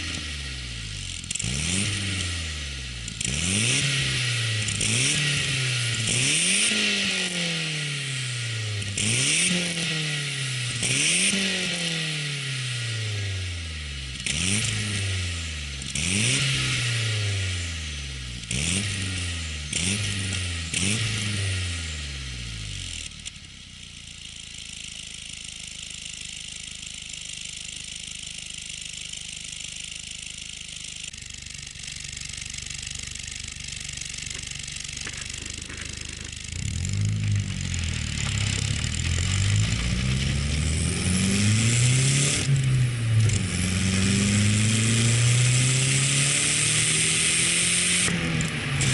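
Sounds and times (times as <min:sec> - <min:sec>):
car engine idling: 0:00.0 - 0:09.2, 0:22.0 - 0:45.4
car engine revving: 0:00.0 - 0:23.0, 0:31.0 - 0:48.9.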